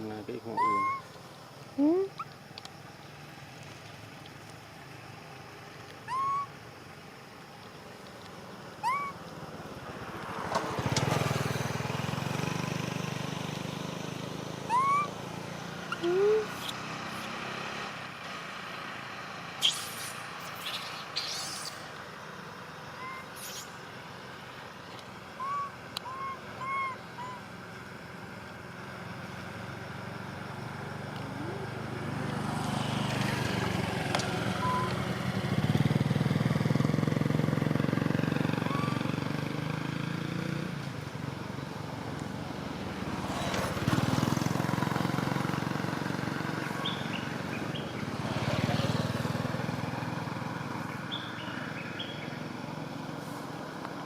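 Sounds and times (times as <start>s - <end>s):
vehicles passing on road: 0.0s - 54.0s
short chirps: 19.6s - 21.9s, 23.0s - 23.8s.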